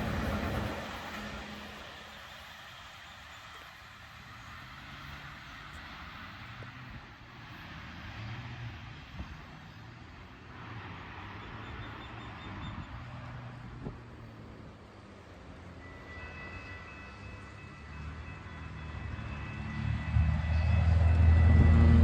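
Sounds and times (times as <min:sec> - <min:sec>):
rolling tyre noise hiss: 0:00.0 - 0:11.9.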